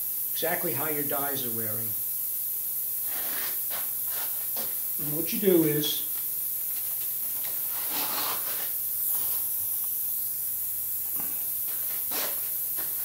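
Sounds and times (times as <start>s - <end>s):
steady high hiss: 0.0s - 13.0s
soft brushing sounds: 3.0s - 4.8s, 6.6s - 9.5s, 11.6s - 13.0s.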